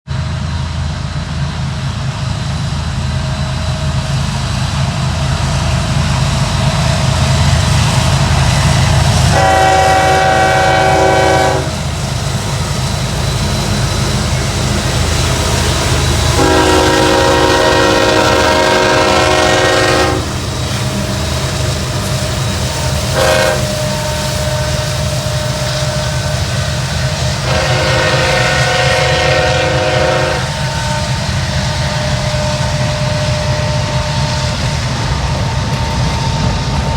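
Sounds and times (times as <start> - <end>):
locomotive engine rumble: 0.1 - 36.9
train air horn blasts: 9.3 - 12.0, 16.2 - 20.8, 22.7 - 26.4, 27.2 - 34.1.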